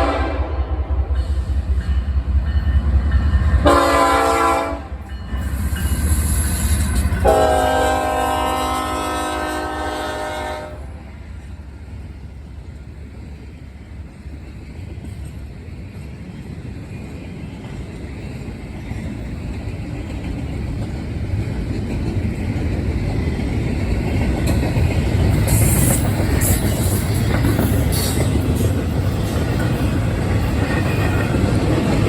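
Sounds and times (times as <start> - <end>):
train horn: 0.0 - 1.2, 3.6 - 5.1, 7.2 - 11.0.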